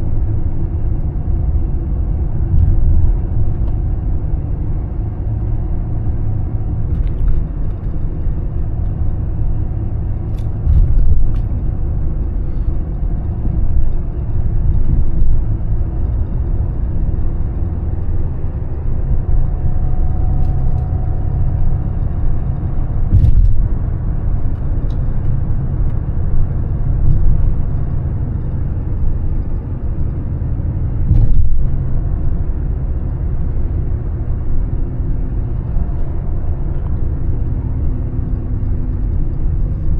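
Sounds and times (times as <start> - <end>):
car engine and road rumble: 0.0 - 39.9
short thuds: 10.3 - 11.7, 23.0 - 24.0, 31.0 - 31.9.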